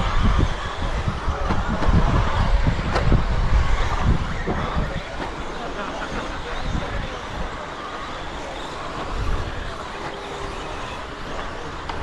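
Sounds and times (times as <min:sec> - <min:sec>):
rc truck motors whining: 0:00.0 - 0:12.0.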